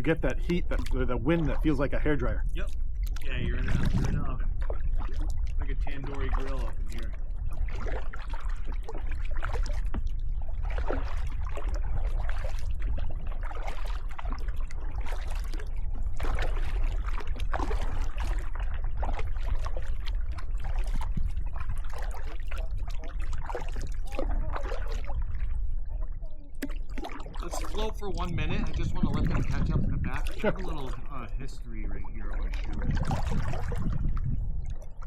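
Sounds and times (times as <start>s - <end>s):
paddle blades splashing: 0.0s - 35.0s
wind on microphone: 0.0s - 35.0s
water dripping off paddle: 0.7s - 1.5s, 26.6s - 28.0s.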